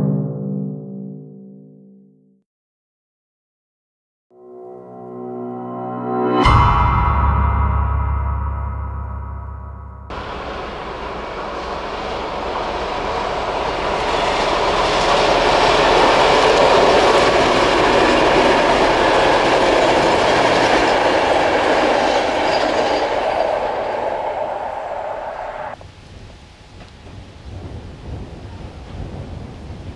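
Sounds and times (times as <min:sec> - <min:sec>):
train wheels on rails: 0:10.1 - 0:25.8.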